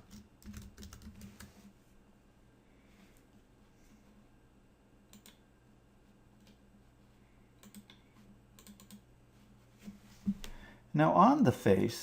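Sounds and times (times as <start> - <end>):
keyboard and mouse clicks: 5.1 - 5.4, 7.6 - 8.0, 8.6 - 9.0.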